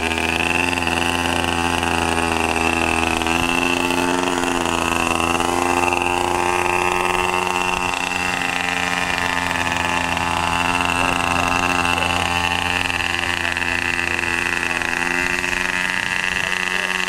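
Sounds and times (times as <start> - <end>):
model airboat engine running: 0.0 - 17.0.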